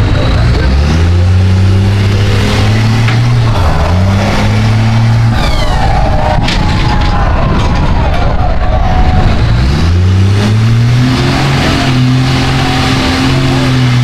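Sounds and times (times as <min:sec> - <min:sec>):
truck engine running under load: 0:00.0 - 0:14.0.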